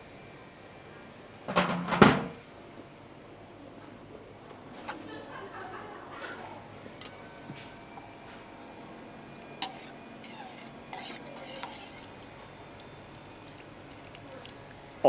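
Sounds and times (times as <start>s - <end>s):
spoon stirring sauce in bowl: 9.6s - 14.8s.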